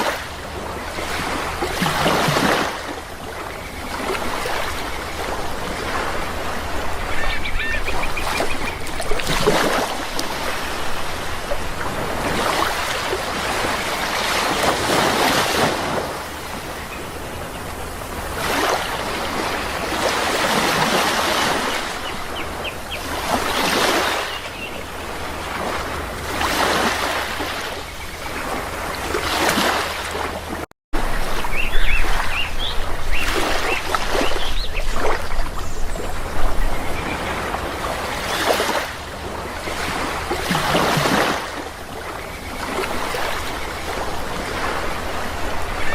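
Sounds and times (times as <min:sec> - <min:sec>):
sea waves washing ashore: 0:00.0 - 0:45.9
short bird calls: 0:07.1 - 0:08.8.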